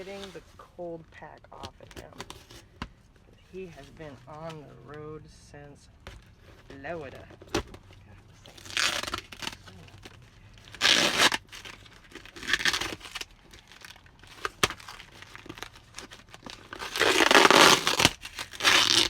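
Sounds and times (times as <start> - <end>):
packaging tearing and crinkling: 8.4 - 19.0.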